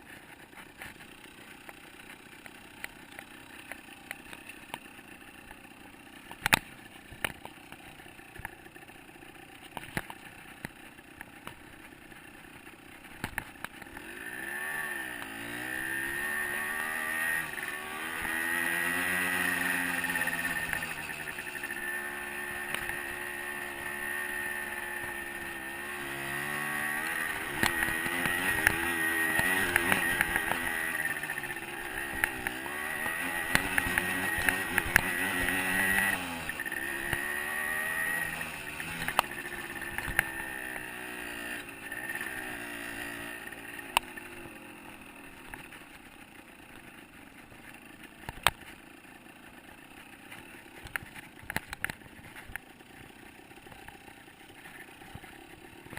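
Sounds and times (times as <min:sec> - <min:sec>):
dirt bike engine revving: 0:11.8 - 0:45.9.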